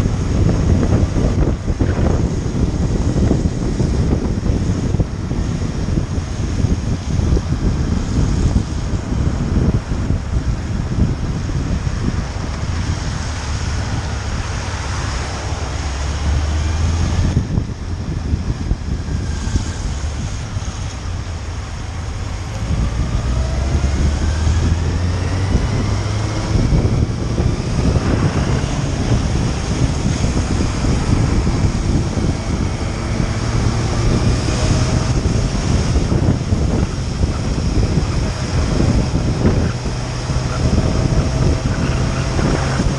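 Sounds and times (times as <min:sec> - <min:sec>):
wind noise on microphone: 0:00.0 - 0:42.9
motorcycle engine revving: 0:18.8 - 0:42.9.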